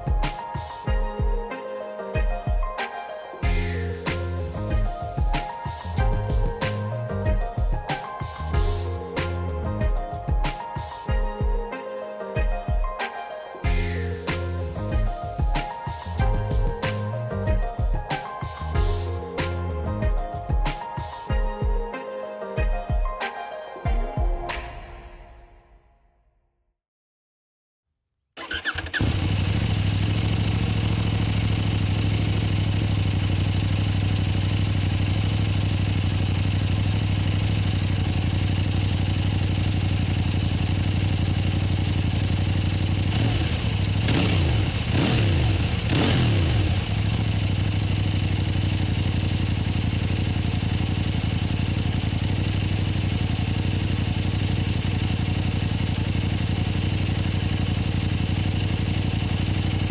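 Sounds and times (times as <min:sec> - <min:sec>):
motorcycle engine idling: 0:28.4 - 0:59.9.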